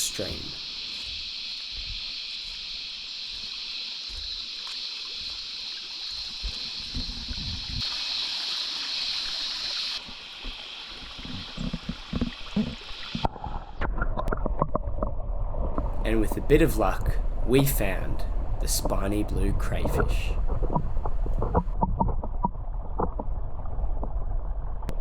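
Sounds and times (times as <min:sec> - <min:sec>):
stream running over rocks: 0:00.0 - 0:13.7.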